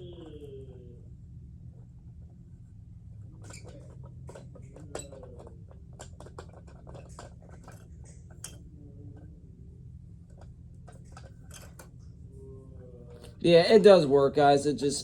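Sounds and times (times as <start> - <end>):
steady low hum: 0.0 - 15.0
plastic knobs clicking and rattling: 3.3 - 8.6
small plastic parts tapping: 3.4 - 8.6.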